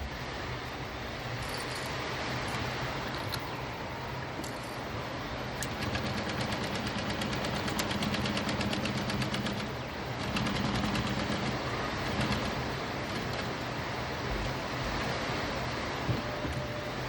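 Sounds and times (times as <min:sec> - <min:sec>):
sewing machine motor hum: 0:05.6 - 0:13.6
sewing machine needle clatter: 0:05.6 - 0:13.6.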